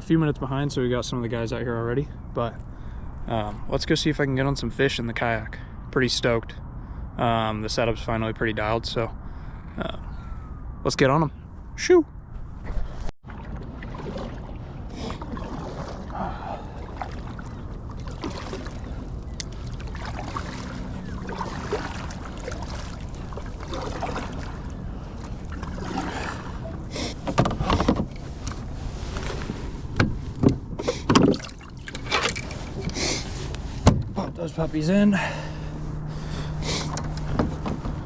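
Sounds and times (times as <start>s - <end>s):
kayak knocks and bumps: 12.7s - 16.2s, 25.5s - 28.6s, 29.2s - 32.8s.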